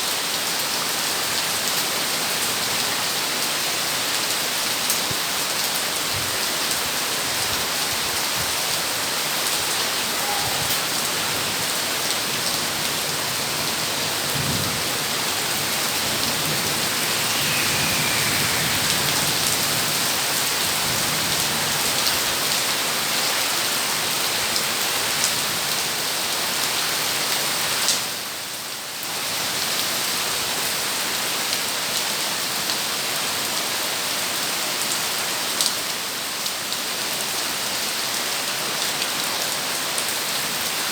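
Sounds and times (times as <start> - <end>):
heavy rain pouring: 0.0 - 28.4.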